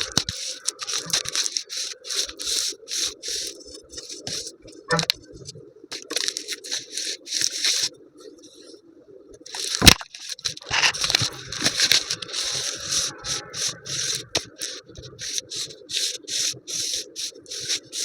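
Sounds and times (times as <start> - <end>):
hand scraping and rubbing dough: 0.0 - 8.7, 9.4 - 18.0.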